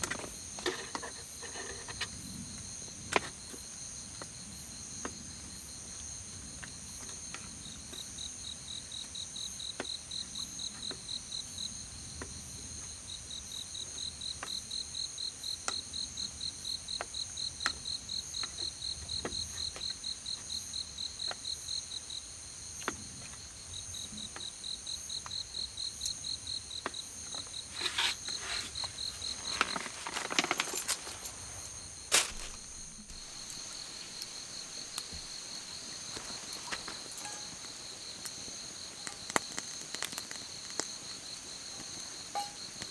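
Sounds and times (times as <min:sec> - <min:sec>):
crickets chirping: 0:00.0 - 0:42.9
high continuous insect trill: 0:00.0 - 0:42.9
rustling: 0:27.6 - 0:37.9.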